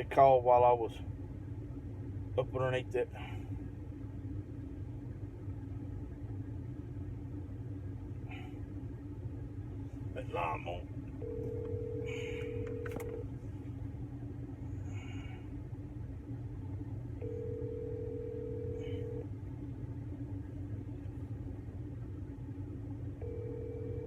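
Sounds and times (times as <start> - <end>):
telephone ringback tone: 11.2 - 13.2, 17.2 - 19.2, 23.2 - 24.0.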